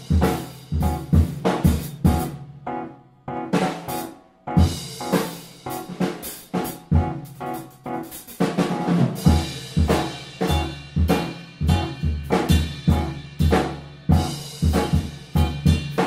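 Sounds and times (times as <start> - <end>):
kick drum and snare hits: 0.0 - 2.3, 9.0 - 16.0
band music: 0.0 - 16.0.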